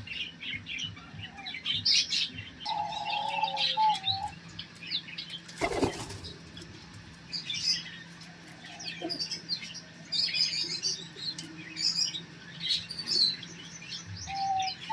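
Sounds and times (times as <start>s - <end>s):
small birds chirping: 0.0s - 14.9s
wings flapping: 5.6s - 6.3s.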